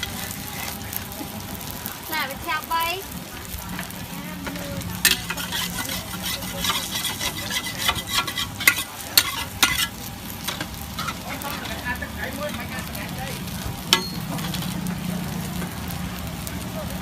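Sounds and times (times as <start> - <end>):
food sizzling in a hot pan: 0.0 - 17.0
utensil scraping and clacking on pan: 3.7 - 12.9, 13.9 - 15.0.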